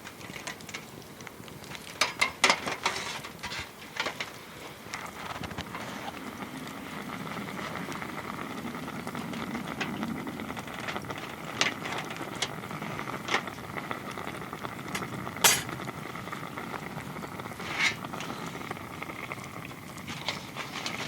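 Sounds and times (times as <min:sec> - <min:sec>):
wood fire crackling: 0:00.0 - 0:21.0
sharp fire pops: 0:14.9 - 0:16.0.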